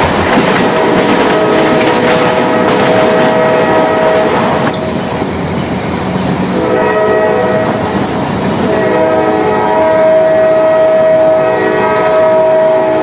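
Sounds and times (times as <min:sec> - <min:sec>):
moving train running noise: 0:00.0 - 0:13.0
train horn chord: 0:00.7 - 0:04.9, 0:06.6 - 0:08.0, 0:08.6 - 0:13.0.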